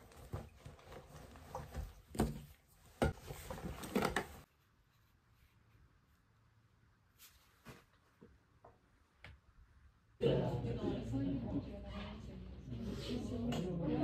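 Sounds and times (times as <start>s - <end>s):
cloth rustling: 0.0s - 6.3s.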